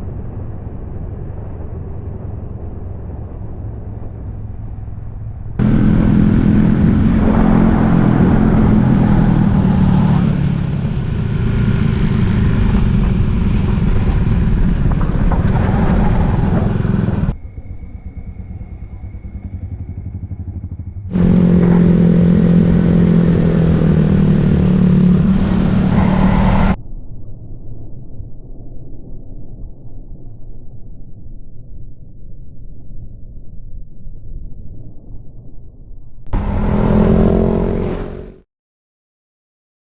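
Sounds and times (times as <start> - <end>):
wind and road noise: 0.0 - 26.8, 36.3 - 38.4
motorcycle engine running: 5.6 - 26.8, 36.3 - 38.4.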